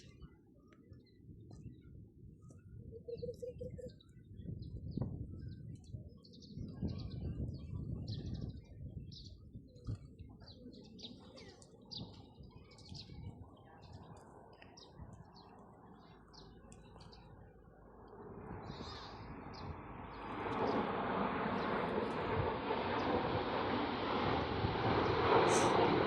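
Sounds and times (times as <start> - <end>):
small birds chirping: 2.9 - 17.8
low background rumble: 14.4 - 26.0.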